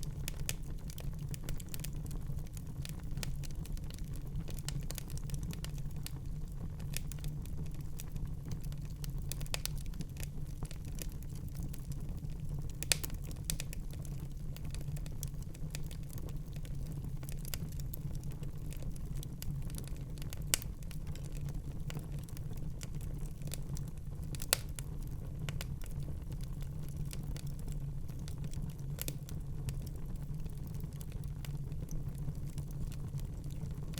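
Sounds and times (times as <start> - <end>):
fire pops and snaps: 0.0 - 6.2, 6.8 - 33.9
low rumble of fire: 0.0 - 33.9.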